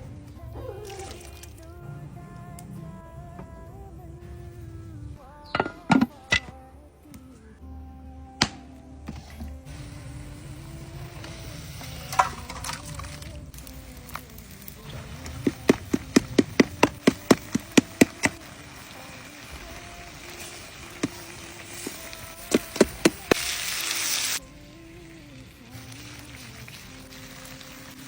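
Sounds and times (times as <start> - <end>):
steady frying hiss: 8.4 - 28.0.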